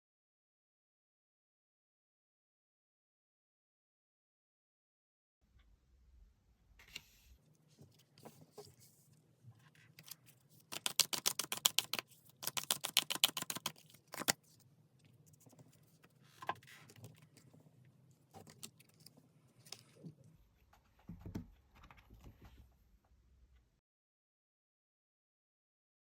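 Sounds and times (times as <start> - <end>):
cards clicking and rustling: 10.0 - 14.5
cards shuffling: 10.0 - 14.5.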